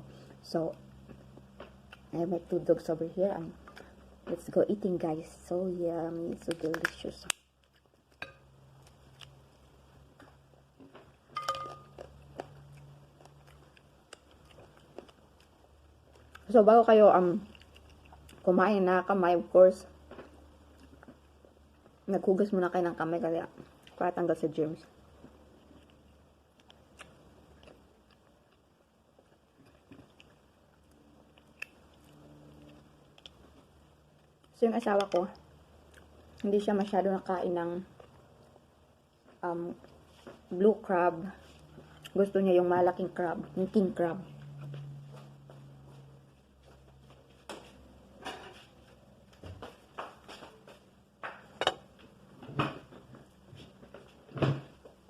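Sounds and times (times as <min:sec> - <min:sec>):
crab shell clicks and cracks: 0:06.4 - 0:07.8
crab shell cracking: 0:06.4 - 0:09.4
person chewing: 0:07.6 - 0:10.7, 0:11.4 - 0:16.5, 0:17.4 - 0:18.5, 0:25.2 - 0:34.5.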